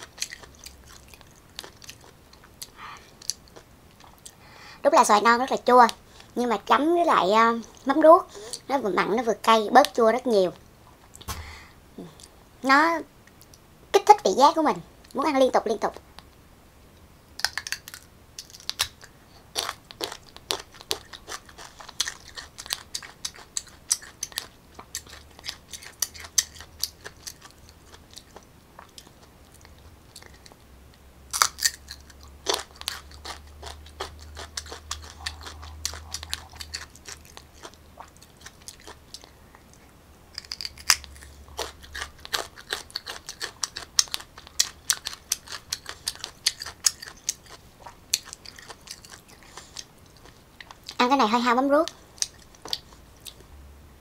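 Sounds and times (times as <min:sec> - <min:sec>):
crunchy chewing: 0:00.0 - 0:04.4, 0:17.4 - 0:30.6, 0:31.3 - 0:51.0, 0:51.8 - 0:53.5.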